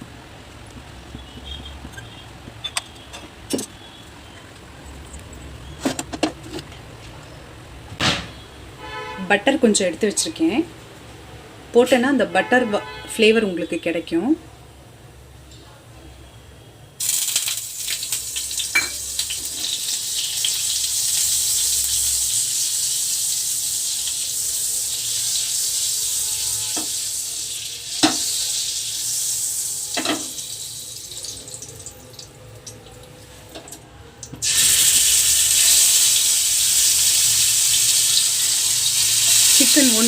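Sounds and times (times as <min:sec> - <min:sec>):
butter sizzling in a frying pan: 0:17.0 - 0:32.2, 0:34.4 - 0:40.0.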